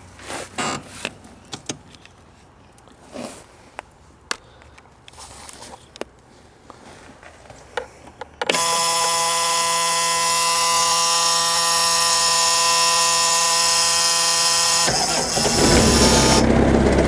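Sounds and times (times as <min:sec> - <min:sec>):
excavator warning buzzer: 0:08.5 - 0:16.6.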